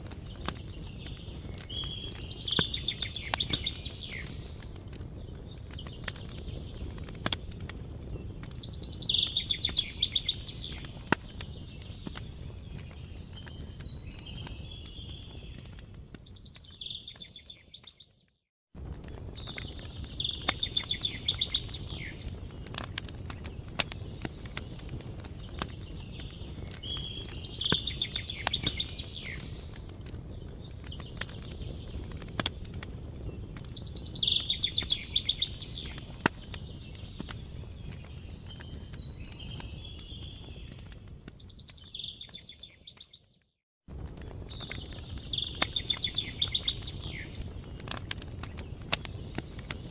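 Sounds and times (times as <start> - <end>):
campfire crackling and popping: 0.0 - 49.9
songbird trilling: 8.7 - 10.8, 33.8 - 36.0.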